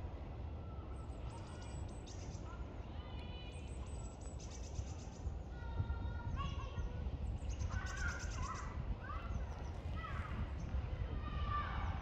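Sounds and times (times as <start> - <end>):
small birds singing and calling: 0.9 - 2.5, 6.3 - 10.9.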